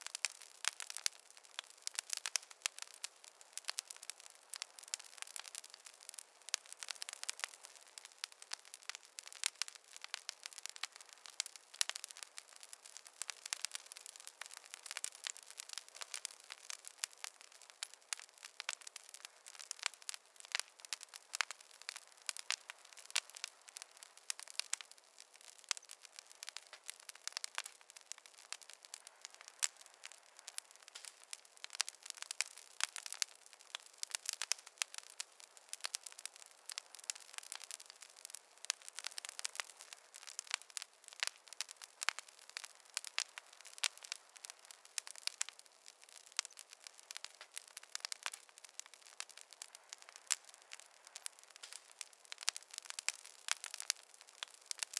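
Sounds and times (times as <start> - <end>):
campfire crackling: 0.0 - 54.9.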